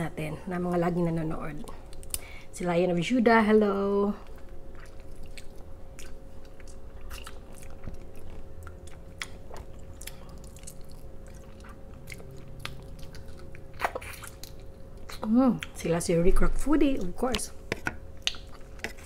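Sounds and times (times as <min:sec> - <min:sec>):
chewing and biting food: 0:04.2 - 0:15.8, 0:18.2 - 0:19.0.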